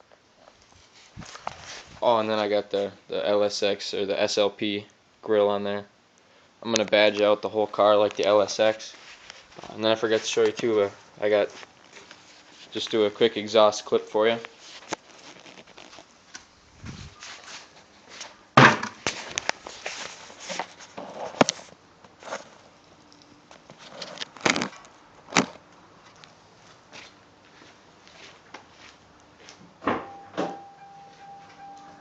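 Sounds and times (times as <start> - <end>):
footsteps: 8.1 - 13.0, 14.4 - 18.4, 25.4 - 29.7
handling noises: 14.3 - 32.0
steady high tone: 30.0 - 32.0.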